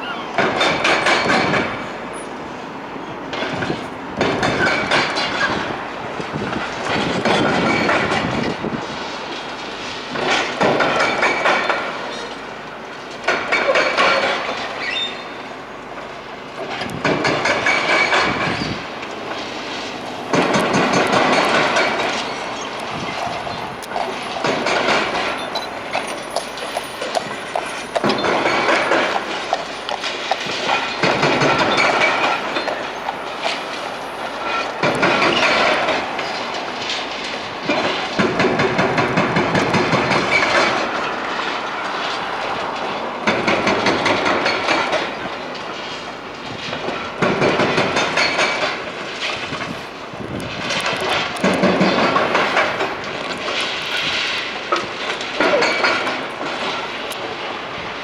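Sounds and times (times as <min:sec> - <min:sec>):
demolition machine noise: 0:00.0 - 0:58.0
rubble crunching and clattering: 0:16.0 - 0:58.0.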